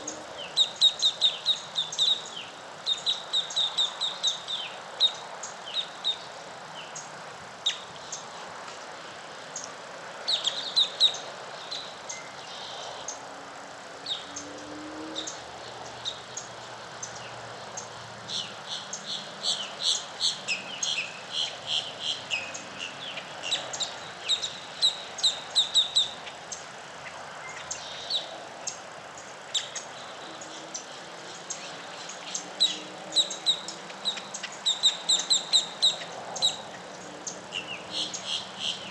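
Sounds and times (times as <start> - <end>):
birds chirping: 0.0 - 8.4, 9.1 - 13.2, 14.0 - 38.9
steady background hiss: 0.0 - 38.9.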